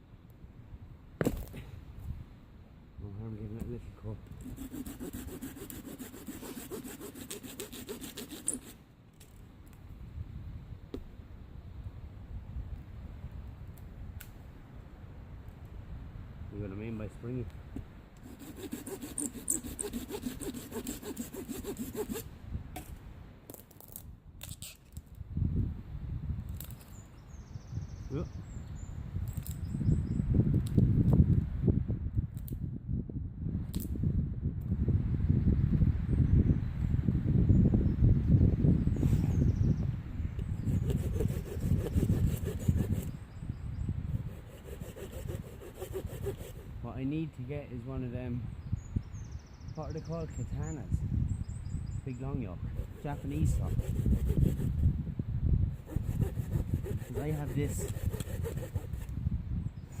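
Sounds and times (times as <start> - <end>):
hand saw cutting a branch: 4.4 - 8.8, 18.2 - 22.3, 40.6 - 43.2, 44.1 - 46.7, 52.7 - 54.8, 55.8 - 59.1.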